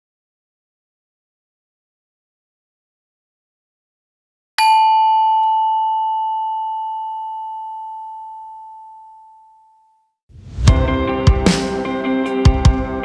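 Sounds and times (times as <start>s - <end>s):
bell-like chime ringing: 4.6s - 10.1s.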